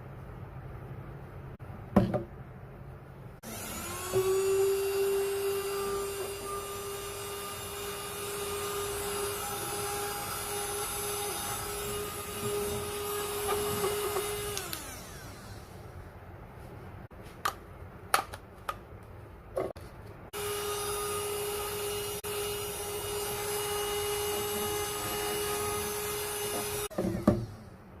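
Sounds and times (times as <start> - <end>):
vacuum cleaner motor whine: 3.4 - 15.9, 20.3 - 27.5.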